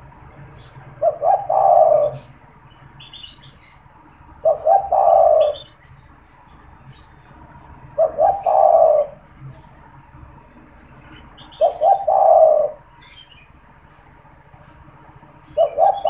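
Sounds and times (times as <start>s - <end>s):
small birds chirping: 0.0s - 16.0s
dove cooing: 0.6s - 2.4s, 4.3s - 5.8s, 7.9s - 9.7s, 11.1s - 13.2s, 15.4s - 16.0s.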